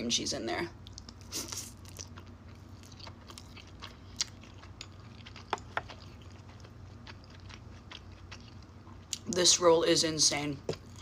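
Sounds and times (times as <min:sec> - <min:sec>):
person chewing with wet smacks: 0:00.8 - 0:09.5.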